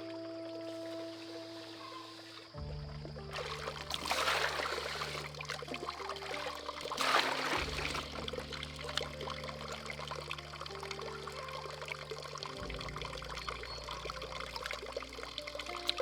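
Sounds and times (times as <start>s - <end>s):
water pouring and trickling: 0.0s - 16.0s.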